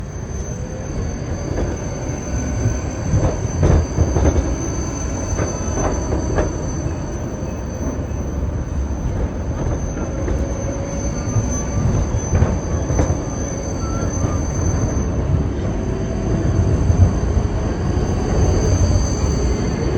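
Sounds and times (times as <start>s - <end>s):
train rumbling on rails: 0.0s - 19.9s
train wheels knocking: 3.0s - 7.0s.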